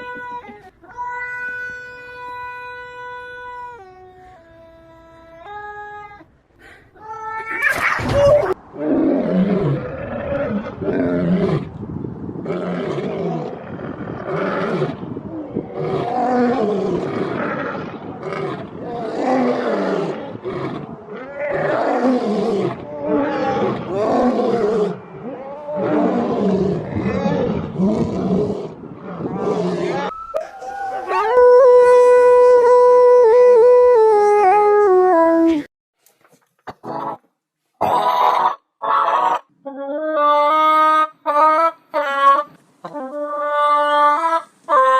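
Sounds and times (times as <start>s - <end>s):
lion roaring and growling: 8.1s - 11.8s, 12.4s - 31.3s.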